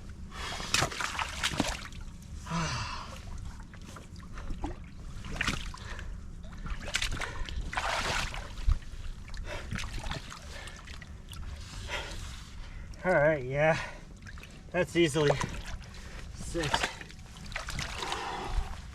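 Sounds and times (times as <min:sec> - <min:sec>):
water splashing and sloshing: 0:00.0 - 0:18.9.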